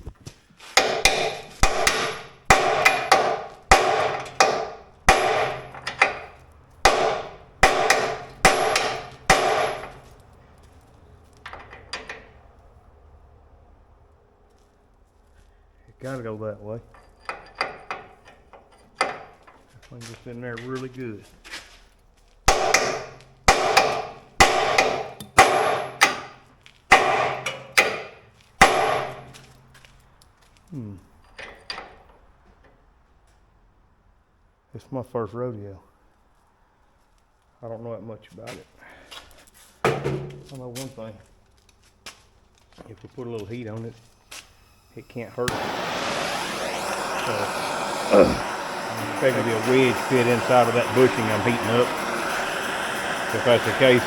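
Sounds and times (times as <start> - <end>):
hammer striking metal: 0.8 - 10.2, 22.5 - 29.5, 39.9 - 40.6, 45.5 - 54.0.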